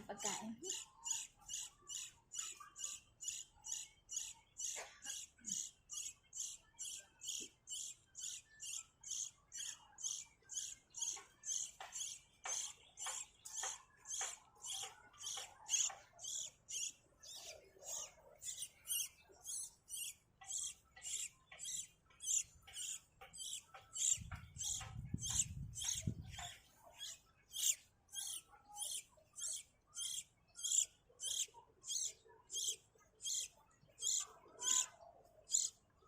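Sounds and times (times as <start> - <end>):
baby bird cheeping: 0.1 - 35.8.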